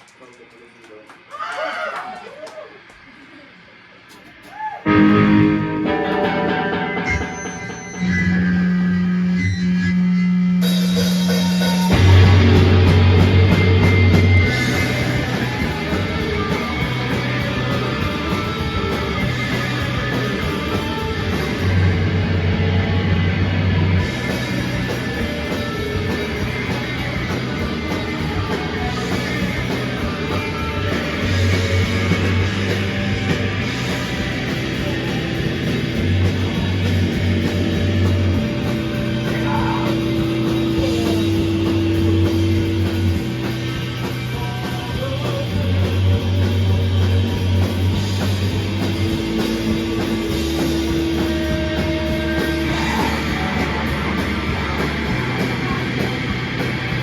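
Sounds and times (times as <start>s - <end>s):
electric guitars: 2.8s - 57.0s
drum kit: 4.0s - 9.4s, 10.4s - 57.0s
bass guitar: 4.8s - 57.0s.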